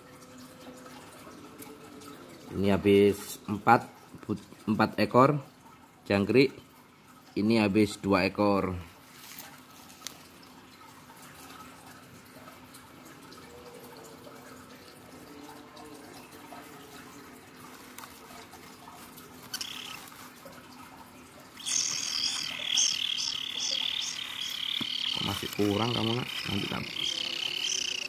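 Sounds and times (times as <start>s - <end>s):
chick begging with buzzy calls: 19.5s - 20.1s, 21.6s - 28.0s
short high bird call: 19.6s - 20.1s, 21.6s - 25.4s.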